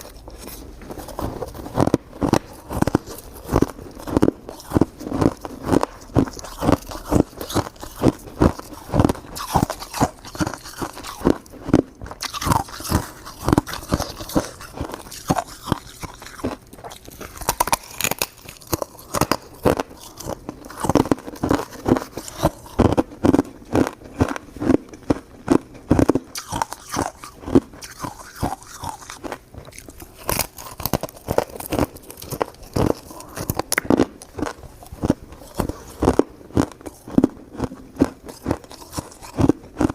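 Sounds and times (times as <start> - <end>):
chewing crunchy shaved ice: 0.0 - 39.9.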